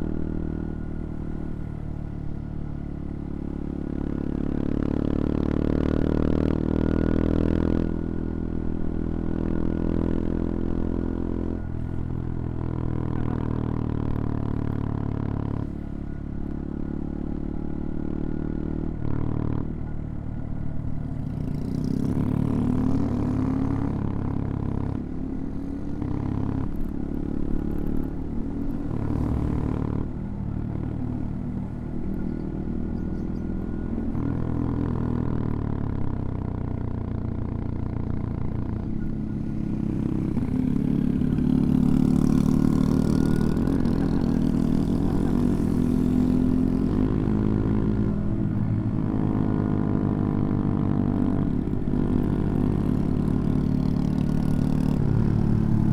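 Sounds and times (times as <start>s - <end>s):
motorcycle engine revving: 21.0s - 55.9s.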